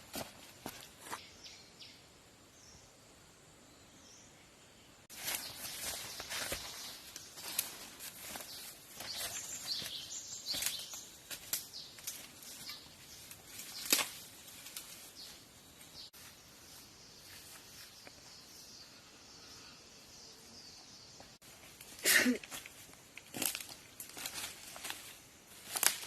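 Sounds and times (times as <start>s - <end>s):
rustling and crackling leaves: 5.1s - 18.3s, 21.4s - 26.0s
twig snapping: 10.5s - 12.3s, 13.5s - 15.0s, 23.2s - 25.0s, 25.6s - 26.0s.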